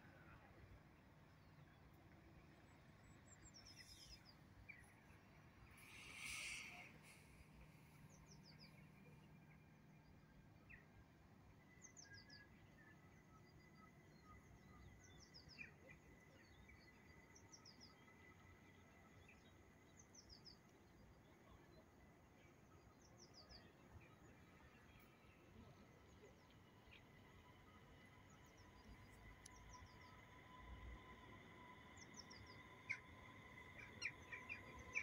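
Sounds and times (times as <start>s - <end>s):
songbird calling: 5.7s - 7.4s.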